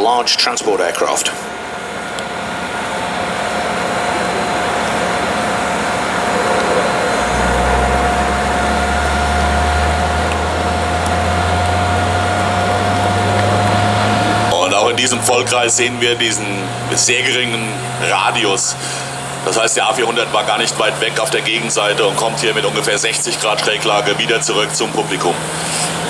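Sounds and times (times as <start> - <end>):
low propeller drone: 0.0 - 26.0
turboprop aircraft engines rushing: 0.0 - 26.0.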